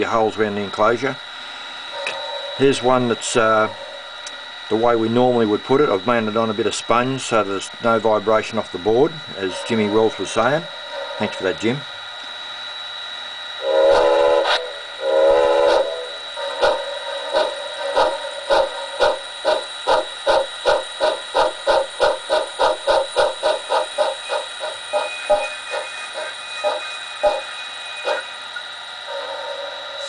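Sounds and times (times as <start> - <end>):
steam locomotive chuffing: 0.0 - 12.3, 13.1 - 30.0
steady high tone: 0.0 - 30.0
steam whistle blasts: 13.6 - 28.4, 29.0 - 30.0.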